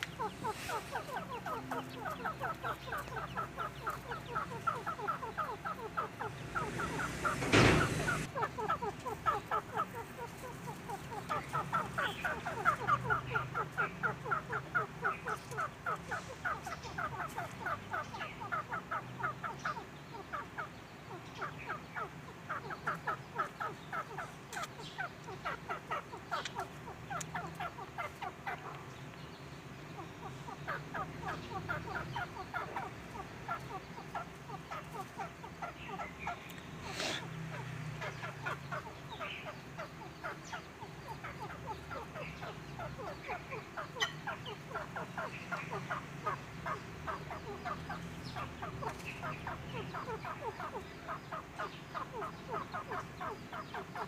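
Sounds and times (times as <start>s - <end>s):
quail chirping: 0.0s - 54.0s
loud burst of noise: 6.4s - 8.3s.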